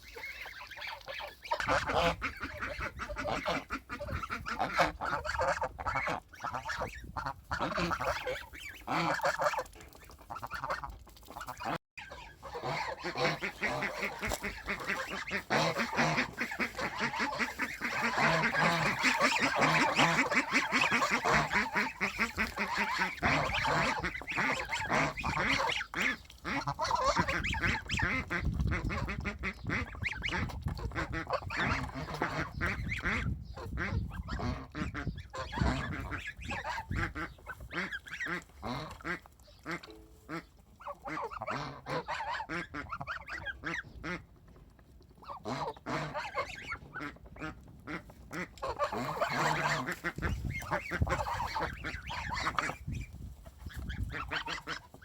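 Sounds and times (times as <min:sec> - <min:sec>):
flock of ducks calling: 0:00.0 - 0:44.3, 0:45.2 - 0:55.0.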